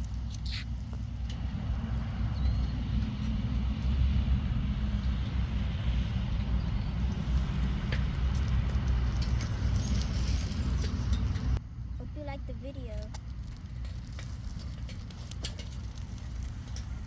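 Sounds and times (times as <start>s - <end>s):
bicycle tyres rolling on pavement: 0.0s - 11.6s, 12.3s - 17.0s
wind buffeting microphone: 0.0s - 11.6s.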